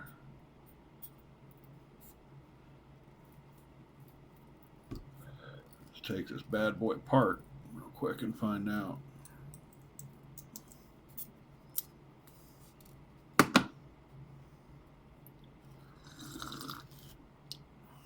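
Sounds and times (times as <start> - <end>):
sharp knocks: 13.4 - 13.7.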